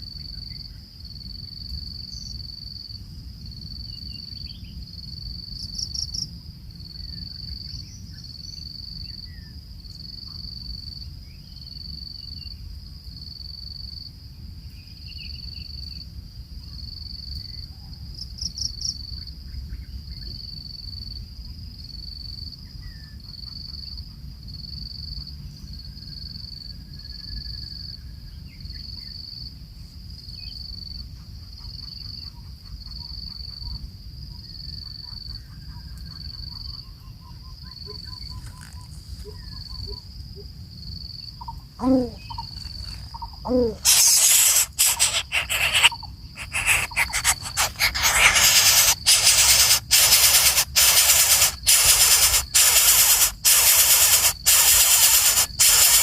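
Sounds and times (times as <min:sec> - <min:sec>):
insect chirping: 0:00.0 - 0:12.6, 0:18.2 - 0:19.2, 0:36.1 - 0:56.0
burst of clicks: 0:43.8 - 0:56.0.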